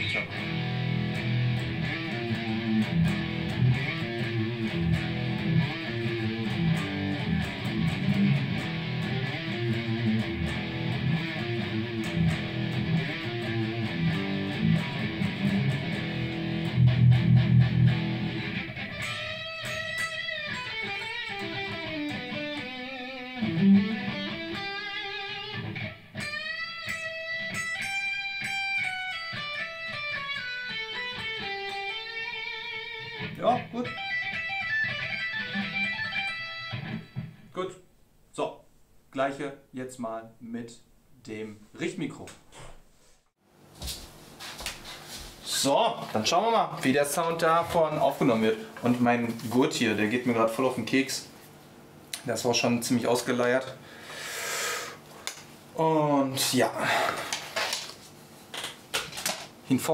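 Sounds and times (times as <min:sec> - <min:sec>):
electric guitar riff: 0:00.0 - 0:37.5.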